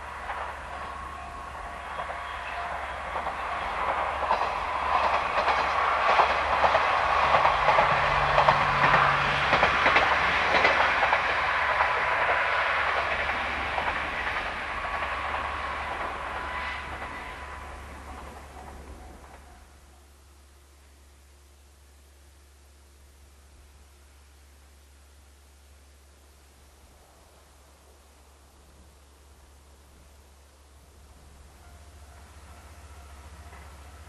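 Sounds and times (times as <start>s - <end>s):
diesel train passing: 0.0s - 21.2s, 26.9s - 34.0s
wheels clicking over rail joints: 3.0s - 17.2s.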